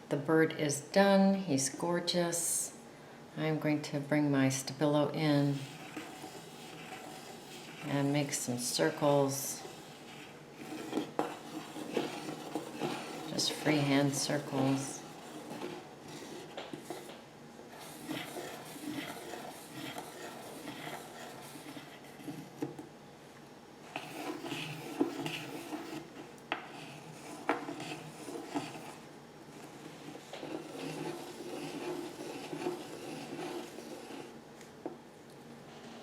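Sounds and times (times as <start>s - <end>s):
pencil scratching on paper: 5.2s - 22.8s, 23.9s - 34.4s, 35.7s - 36.0s.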